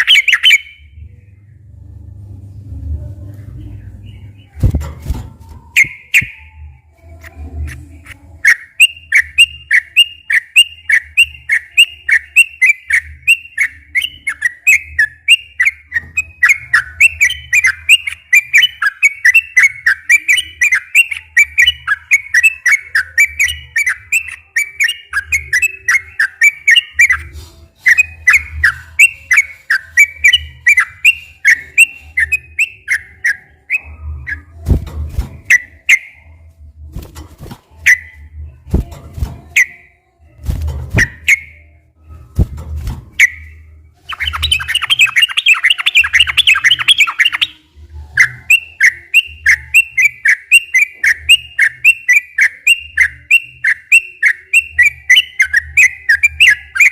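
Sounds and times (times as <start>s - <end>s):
bird singing bubbly whistled notes: 0.0s - 1.0s, 5.7s - 6.6s, 8.4s - 27.3s, 43.2s - 47.6s, 48.2s - 56.9s.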